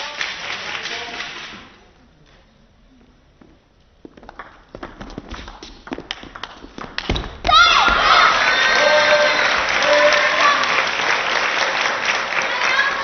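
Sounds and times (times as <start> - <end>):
crowd clapping: 0.0 - 1.8, 6.0 - 13.0
crowd voices: 7.9 - 13.0.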